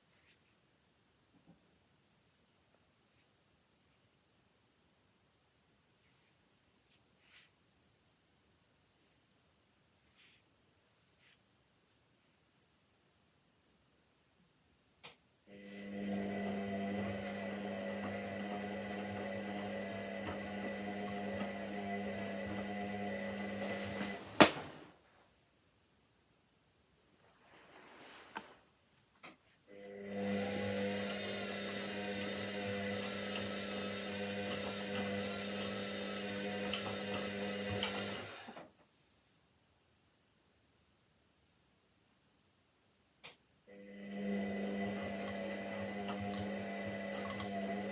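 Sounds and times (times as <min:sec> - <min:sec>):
washing machine motor humming: 0:15.5 - 0:24.9, 0:29.7 - 0:38.7, 0:43.7 - 0:47.9.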